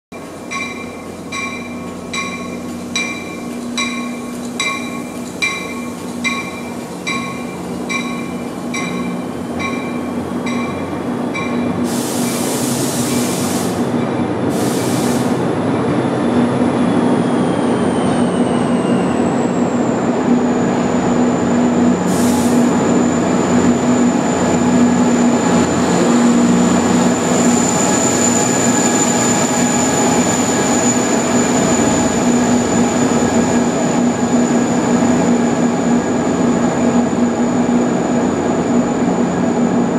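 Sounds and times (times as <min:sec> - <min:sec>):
train rolling past: 0:00.1 - 0:39.9
bell ringing: 0:00.5 - 0:11.8
short air hisses: 0:11.8 - 0:15.4, 0:22.1 - 0:22.7.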